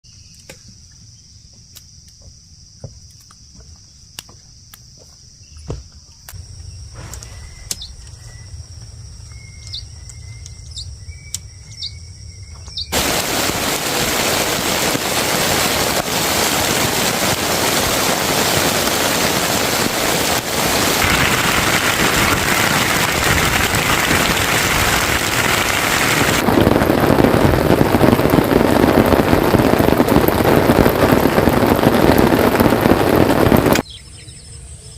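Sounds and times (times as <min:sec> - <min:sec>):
crickets trilling: 0:00.0 - 0:34.9
birds chirping: 0:06.4 - 0:14.4
heavy rain: 0:12.9 - 0:33.8.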